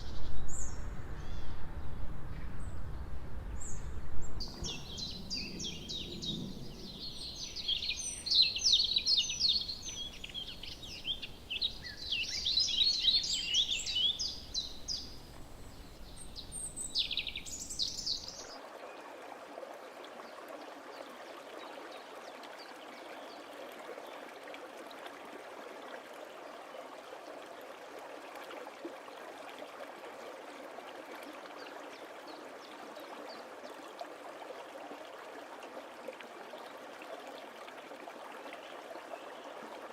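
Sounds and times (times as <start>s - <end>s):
stream running: 0.0s - 39.9s
birds chirping and trilling: 3.6s - 18.6s.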